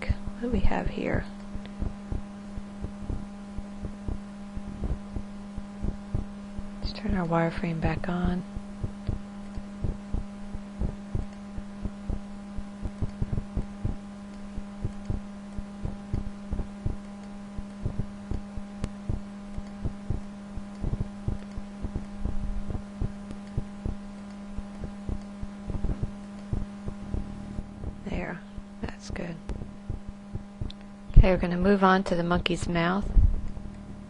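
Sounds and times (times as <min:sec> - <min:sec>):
low electrical hum: 0:00.0 - 0:34.0.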